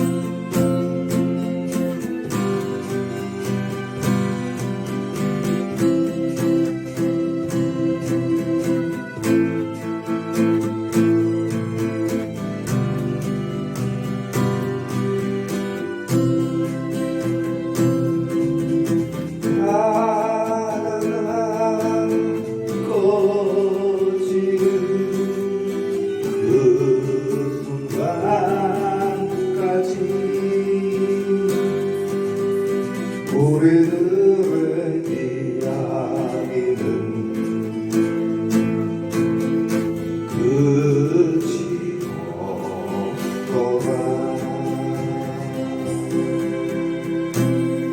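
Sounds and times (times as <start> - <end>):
guitar strumming and plucking: 0.0 - 47.9
person singing with vibrato: 14.2 - 47.9.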